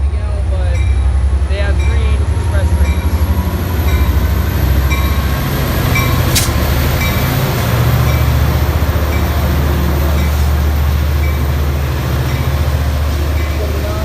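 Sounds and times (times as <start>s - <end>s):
locomotive bell ringing: 0.0s - 5.4s
diesel locomotive rumble: 0.0s - 14.0s
sharp short burst: 6.2s - 6.7s.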